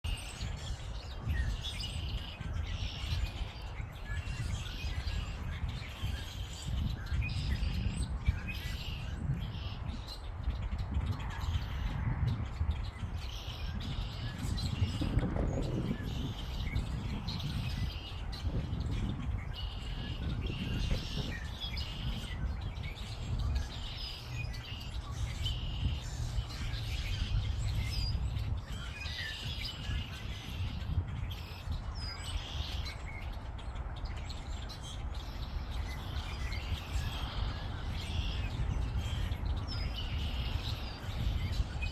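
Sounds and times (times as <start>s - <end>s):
songbirds chirping: 0.0s - 41.9s.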